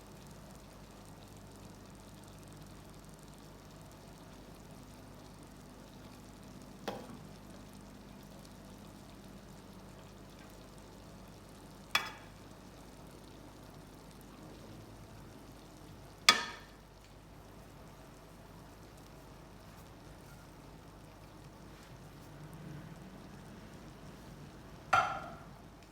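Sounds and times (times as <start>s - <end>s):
food sizzling in a pot: 0.0s - 25.9s
utensil knocking on pot: 16.3s - 16.7s, 25.0s - 25.5s.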